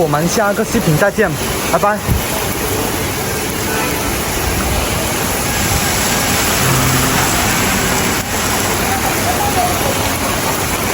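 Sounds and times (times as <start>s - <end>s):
heavy rain on street: 0.0s - 10.9s
low hum: 6.6s - 9.1s.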